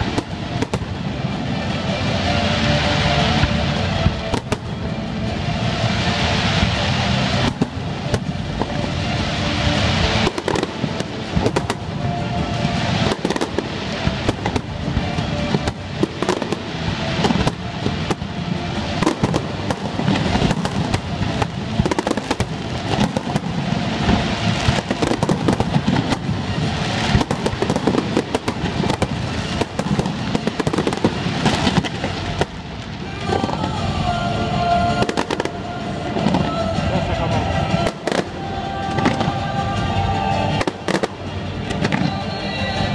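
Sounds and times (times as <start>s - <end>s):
music playing: 0.0s - 42.9s
firework shells cracking and booming: 9.6s - 32.9s.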